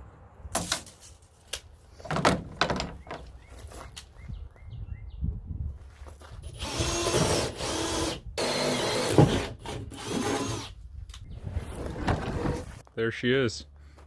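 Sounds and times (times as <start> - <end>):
power drill cutting into wood: 6.6 - 10.8.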